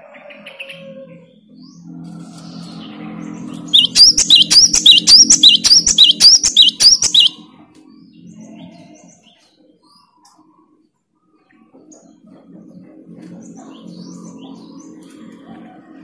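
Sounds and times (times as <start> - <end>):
bird singing two-note phrases: 3.6 - 7.4
faint bird chirps: 3.7 - 7.4.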